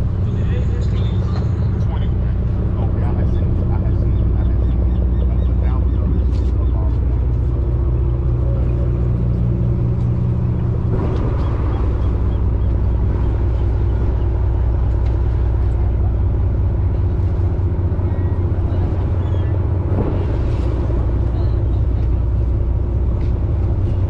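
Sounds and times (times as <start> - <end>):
boat engine droning: 0.0 - 24.0
rush of noise: 7.2 - 24.0.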